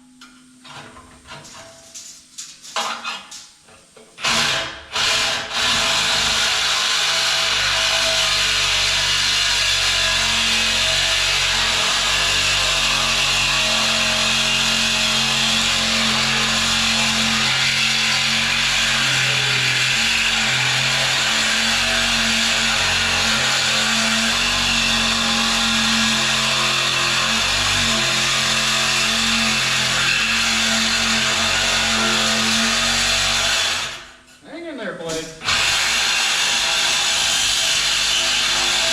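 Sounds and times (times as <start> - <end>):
abrasive tool grinding metal: 4.2 - 34.1, 35.4 - 38.9
power tool motor hum: 35.4 - 38.9.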